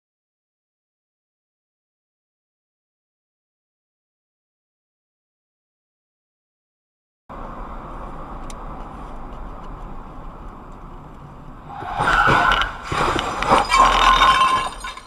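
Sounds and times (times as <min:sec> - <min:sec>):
car road and engine noise: 0:07.3 - 0:15.0
traffic collision crash: 0:11.6 - 0:15.0.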